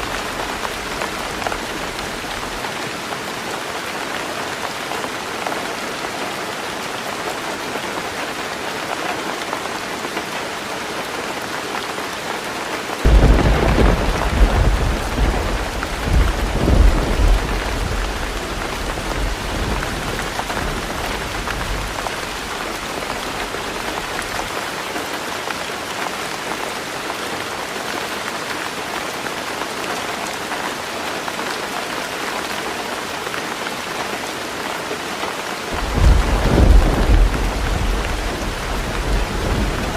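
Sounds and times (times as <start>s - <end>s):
heavy rain on a tin roof: 0.0s - 39.9s
thunder rumbling: 13.1s - 24.2s, 35.7s - 39.9s.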